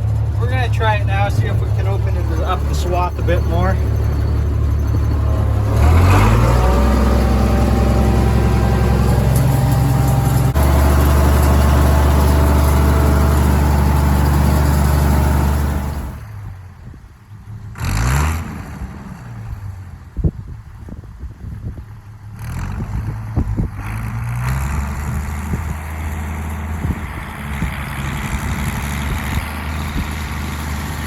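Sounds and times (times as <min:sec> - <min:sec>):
rising whir: 0:00.0 - 0:16.3
tractor engine revving: 0:00.0 - 0:16.3, 0:22.3 - 0:31.0.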